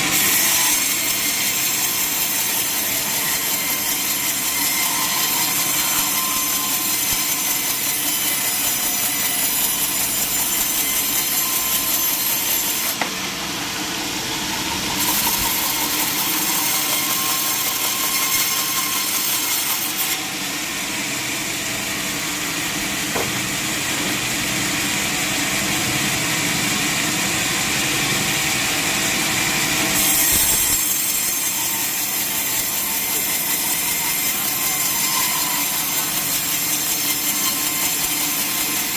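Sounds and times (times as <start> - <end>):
saw cutting through log: 0.0 - 38.9.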